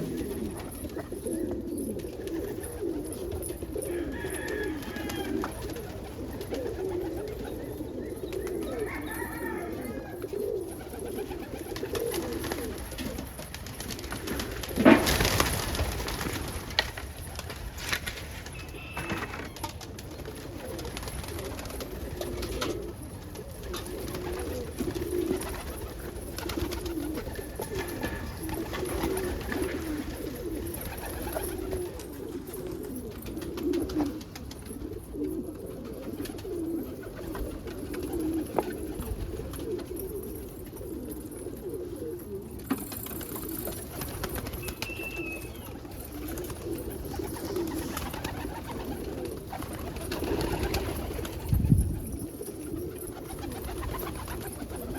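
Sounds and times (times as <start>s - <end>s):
pigeons cooing: 0.0s - 54.9s.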